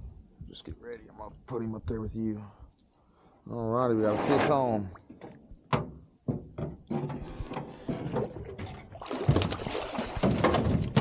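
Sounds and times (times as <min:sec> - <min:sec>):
knocks and rattles: 0:05.7 - 0:11.0
water splashing: 0:08.4 - 0:11.0.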